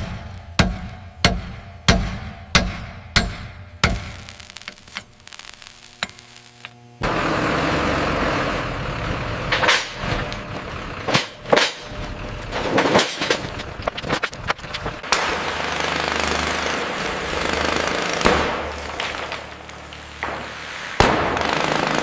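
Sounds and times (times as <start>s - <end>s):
power tool running: 4.0s - 9.5s, 14.5s - 20.2s.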